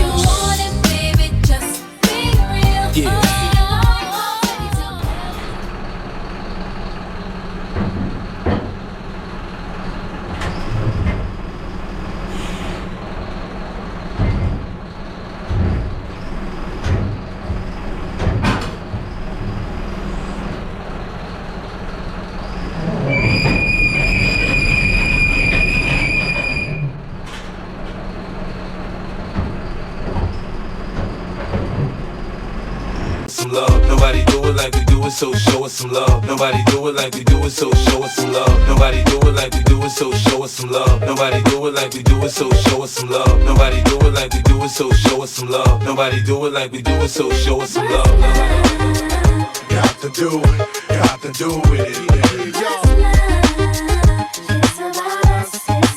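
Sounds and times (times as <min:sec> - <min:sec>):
truck engine running: 0:00.0 - 0:01.6, 0:27.6 - 0:46.2, 0:46.9 - 0:55.9
high-pitched squeal: 0:22.2 - 0:27.0, 0:32.8 - 0:55.9.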